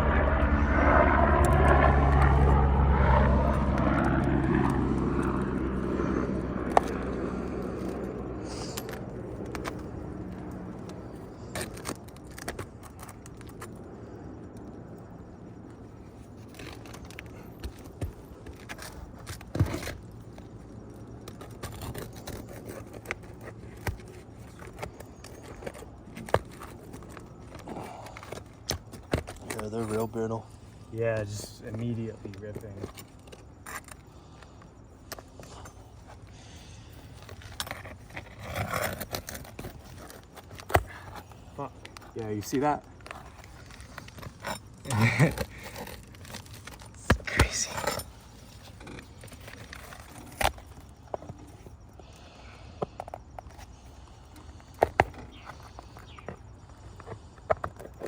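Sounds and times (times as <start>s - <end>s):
engine passing by: 0.0s - 10.8s
shingles scraping and cracking: 1.0s - 14.2s, 15.5s - 58.0s.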